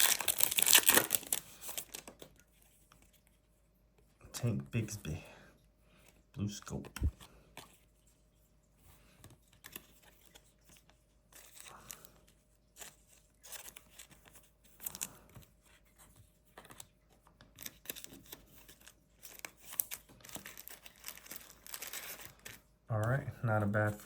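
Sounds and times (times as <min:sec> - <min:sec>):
plastic wrappers tearing and crinkling: 0:00.0 - 0:02.4, 0:17.6 - 0:22.6.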